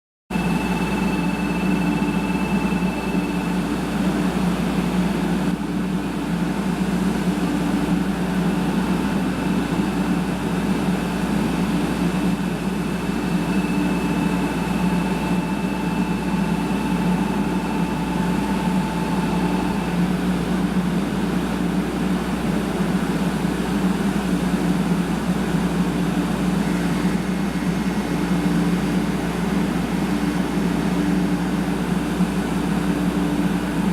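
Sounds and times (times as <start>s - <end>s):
faint high tone: 0.3s - 3.8s, 13.1s - 20.1s
train equipment humming: 10.8s - 21.4s.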